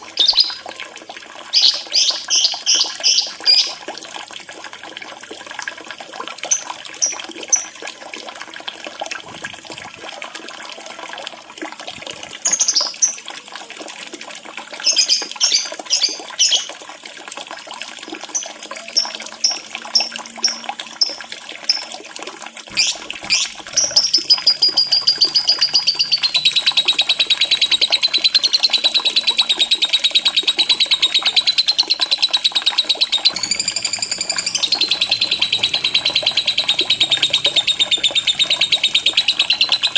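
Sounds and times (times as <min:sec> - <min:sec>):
running water: 0:00.0 - 0:39.9
lovebird chirping: 0:22.7 - 0:39.9.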